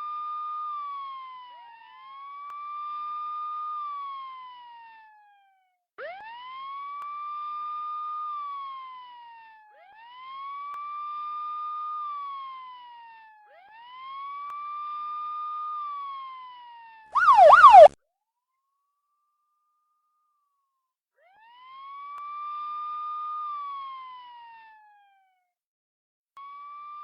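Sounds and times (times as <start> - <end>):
police siren wailing: 17.2 - 18.0
siren yelp: 17.2 - 18.0.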